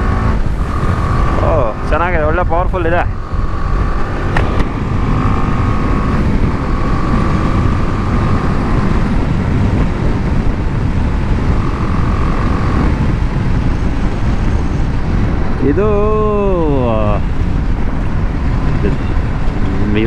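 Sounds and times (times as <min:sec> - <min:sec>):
motorcycle engine running: 0:00.0 - 0:20.0
wind rumble on microphone: 0:00.0 - 0:20.0.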